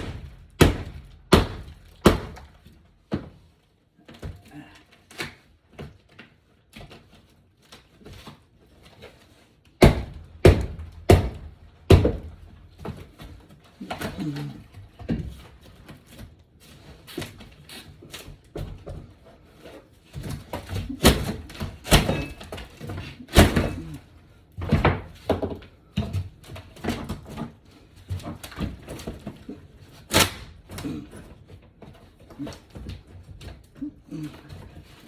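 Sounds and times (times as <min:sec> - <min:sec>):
loud sharp impacts: 0:00.0 - 0:02.6, 0:09.8 - 0:12.6
flooring being torn up: 0:00.0 - 0:03.5, 0:04.1 - 0:35.0.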